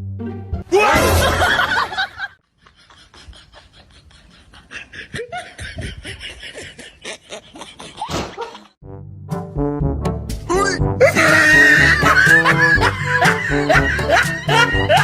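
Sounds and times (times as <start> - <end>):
laughter in bursts: 1.0 - 8.8, 11.0 - 15.0.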